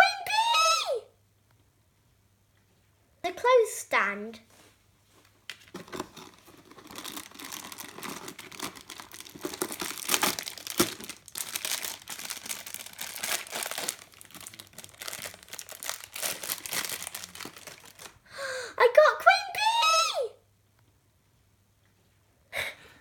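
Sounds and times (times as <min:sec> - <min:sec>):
plastic packaging crinkling and tearing: 0:05.5 - 0:18.2.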